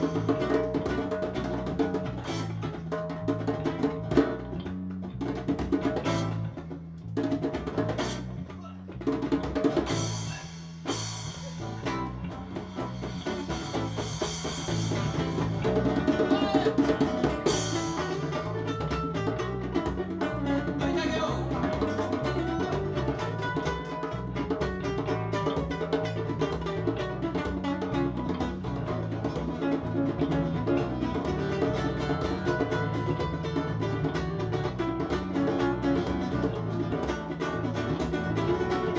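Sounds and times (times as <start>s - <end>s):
acoustic band playing: 0.0s - 38.9s
cymbal washes: 9.8s - 16.1s, 17.0s - 18.6s.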